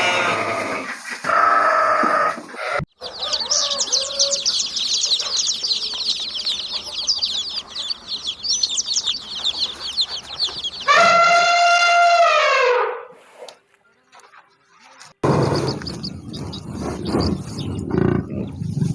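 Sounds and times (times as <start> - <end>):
bleat: 0.0 - 2.8
poultry cheeping: 0.0 - 12.4, 13.8 - 18.9
rooster crowing: 1.3 - 12.8.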